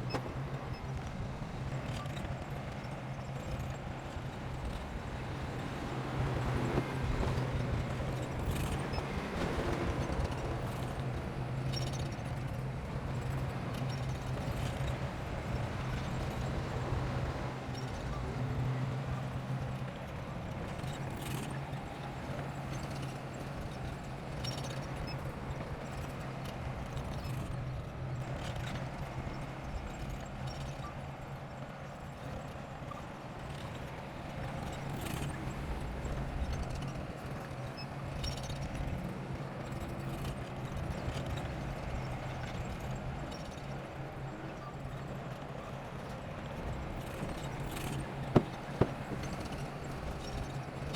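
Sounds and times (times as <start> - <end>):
bulldozer diesel engine droning: 47.9 - 49.5
metallic knocks and clanks: 48.3 - 49.4.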